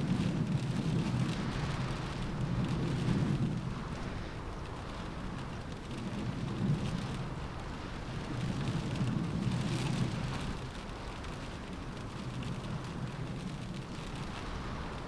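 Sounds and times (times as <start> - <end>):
rain on a window: 0.0 - 15.0
wind rumbling in gusts: 0.0 - 15.0.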